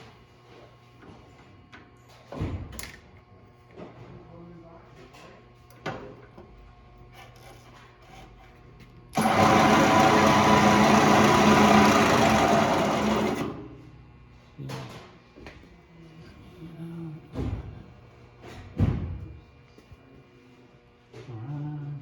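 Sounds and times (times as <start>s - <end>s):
milling machine motor humming: 9.2s - 13.7s.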